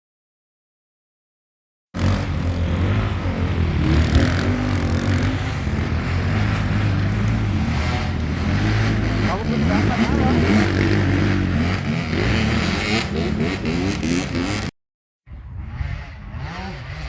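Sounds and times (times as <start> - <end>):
motorcycle engine running: 2.0 - 14.7.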